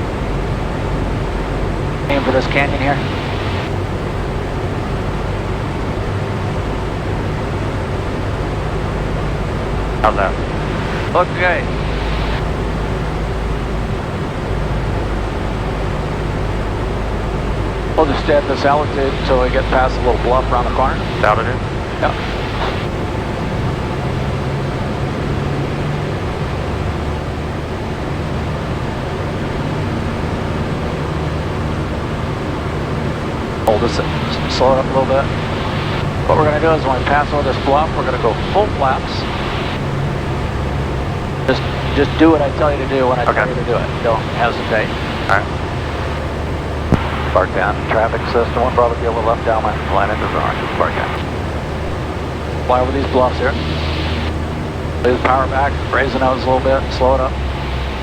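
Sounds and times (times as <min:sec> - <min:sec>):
aircraft engine and propeller drone: 0:00.0 - 0:58.0
airflow noise: 0:28.8 - 0:58.0.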